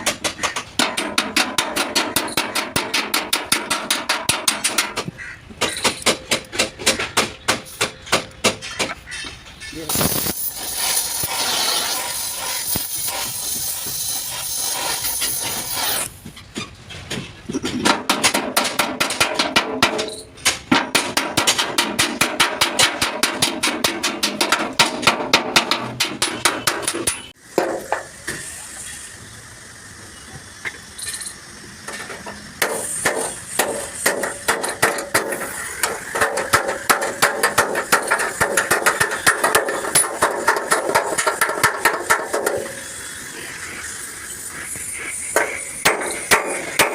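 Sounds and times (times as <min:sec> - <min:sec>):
hammer striking sheet metal: 0:00.0 - 0:09.0, 0:17.8 - 0:28.1, 0:32.6 - 0:42.8, 0:45.3 - 0:46.9
steady hissing noise: 0:09.8 - 0:16.4, 0:21.0 - 0:46.9.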